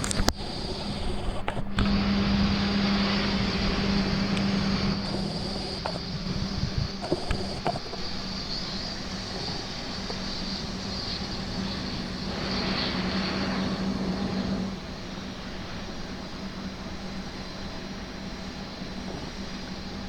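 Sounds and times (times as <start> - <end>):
jet engines whining: 0.0 - 20.0.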